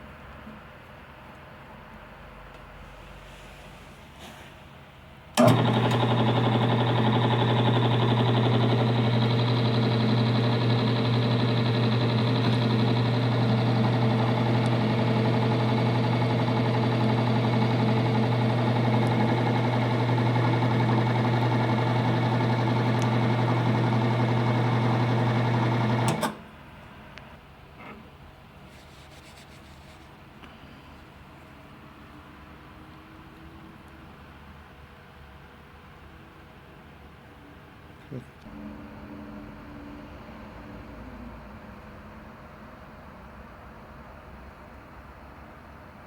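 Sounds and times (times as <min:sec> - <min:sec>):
electric motor humming: 0:05.4 - 0:26.2.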